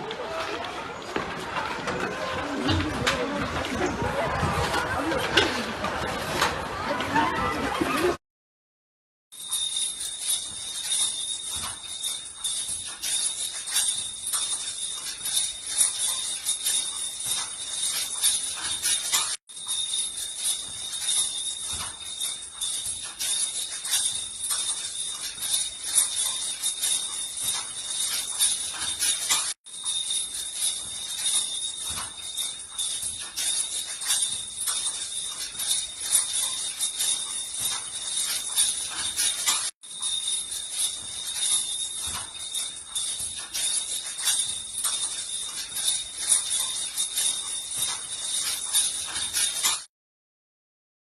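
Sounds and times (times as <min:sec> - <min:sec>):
small objects jingling and clinking: 0:09.3 - 0:49.9.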